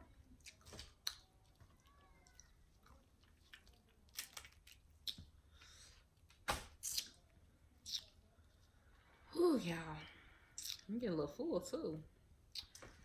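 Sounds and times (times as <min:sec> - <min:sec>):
quiet chewing: 0:00.1 - 0:09.0
mouth clicks and smacks: 0:03.2 - 0:05.4, 0:06.8 - 0:07.2, 0:07.8 - 0:08.2, 0:10.6 - 0:10.9, 0:12.5 - 0:12.9.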